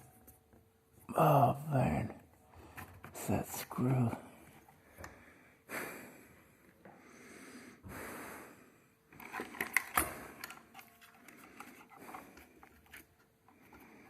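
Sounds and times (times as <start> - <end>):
soft breaths: 1.2 - 14.0
wires clicking and scraping: 9.1 - 14.0.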